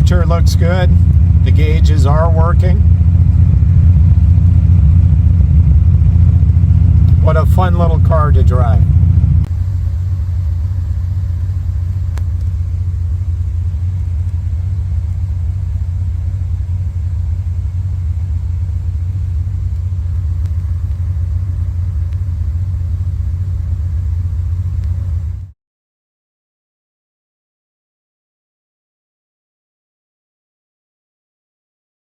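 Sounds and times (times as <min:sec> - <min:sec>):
car engine running: 0:00.0 - 0:25.5.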